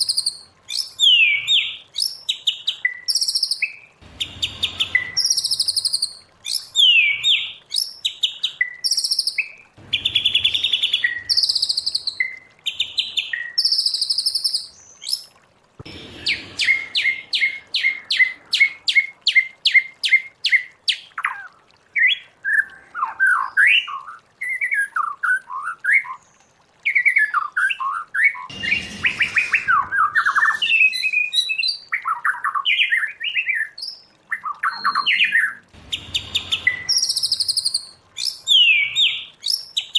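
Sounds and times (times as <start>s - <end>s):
songbird whistling song: 0.0s - 15.2s, 26.9s - 39.9s.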